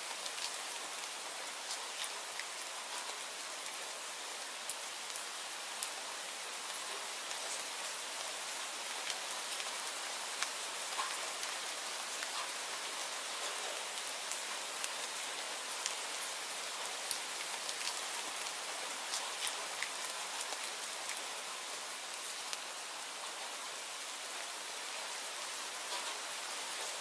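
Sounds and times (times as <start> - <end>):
rain hiss: 0.0 - 27.0
raindrops ticking on a surface: 0.0 - 27.0.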